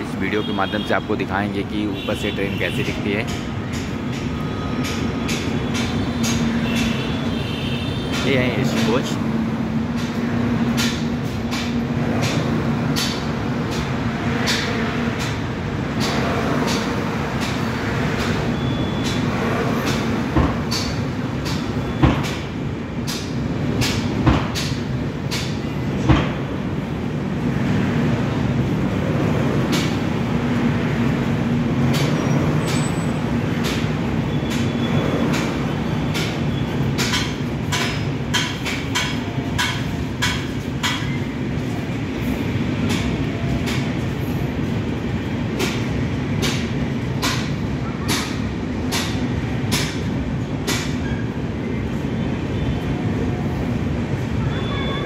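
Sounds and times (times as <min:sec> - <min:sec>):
train rumble and low hum: 0:00.0 - 0:55.0
train wheels clicking over rails: 0:02.8 - 0:07.4, 0:08.0 - 0:51.1.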